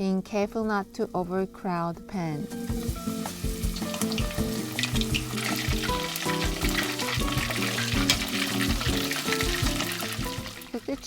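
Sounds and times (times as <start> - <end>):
background music: 0.0 - 11.0
chicken frying in hot oil: 2.5 - 11.0.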